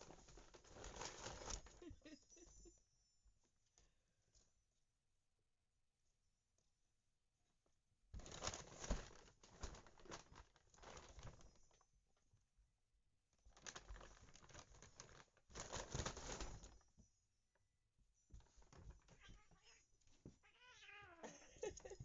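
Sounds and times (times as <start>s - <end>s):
bag rustling and crinkling: 0.0s - 2.0s, 8.2s - 11.8s, 13.5s - 16.8s.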